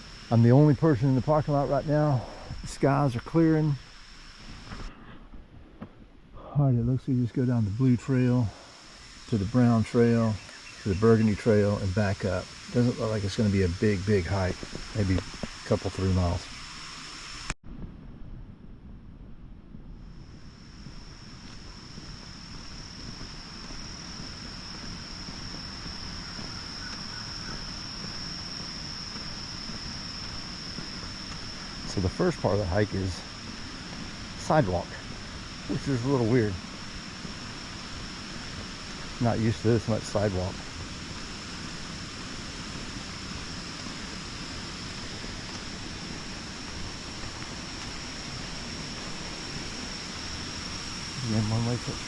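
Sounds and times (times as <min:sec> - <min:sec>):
high-pitched insect drone: 0:00.0 - 0:05.6, 0:06.4 - 0:17.6, 0:20.0 - 0:52.0
even hiss: 0:00.0 - 0:17.6, 0:19.9 - 0:52.0
constant high-pitched tone: 0:00.0 - 0:52.0
wind rumble on microphone: 0:17.6 - 0:52.0.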